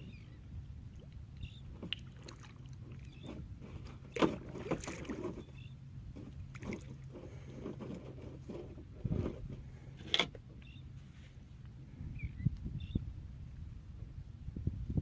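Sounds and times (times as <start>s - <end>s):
steady low hum: 0.0s - 15.0s
kayak paddle splashing: 1.0s - 8.8s.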